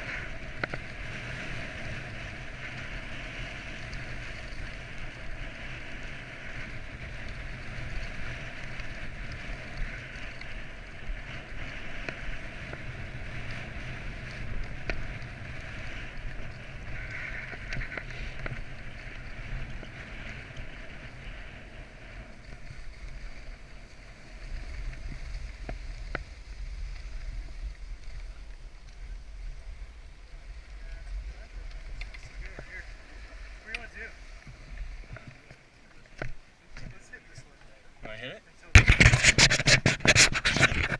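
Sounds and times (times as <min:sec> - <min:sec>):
wind buffeting microphone: 0:00.0 - 0:35.5, 0:38.7 - 0:40.9
skis hissing through snow: 0:10.8 - 0:35.4.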